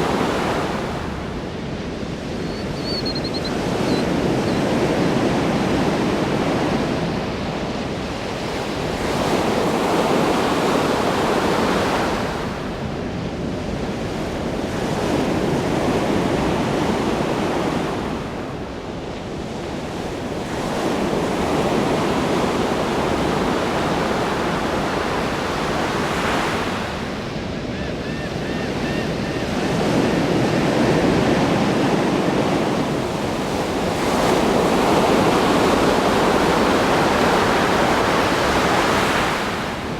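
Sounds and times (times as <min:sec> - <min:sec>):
ocean waves breaking: 0:00.0 - 0:02.4, 0:14.7 - 0:39.9.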